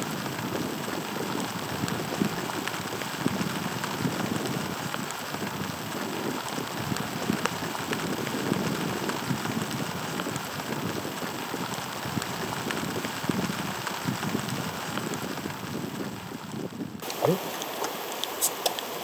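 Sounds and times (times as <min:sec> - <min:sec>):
rain pouring: 0:00.0 - 0:19.0
raindrops ticking close by: 0:00.1 - 0:19.0.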